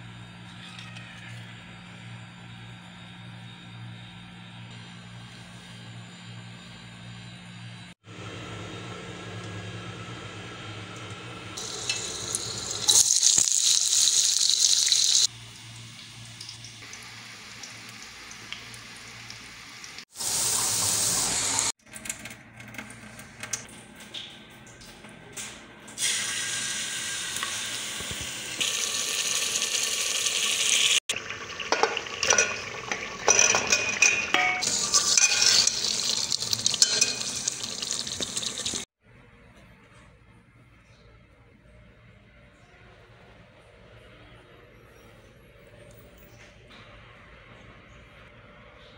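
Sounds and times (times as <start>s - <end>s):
food sizzling: 11.6s - 21.7s, 26.0s - 38.9s
water sounds: 28.3s - 38.9s.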